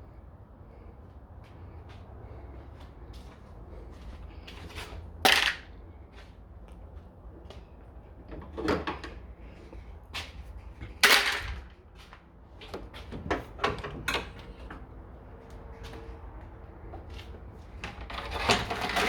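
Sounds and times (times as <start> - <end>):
rattling scrape: 18.1 - 19.0.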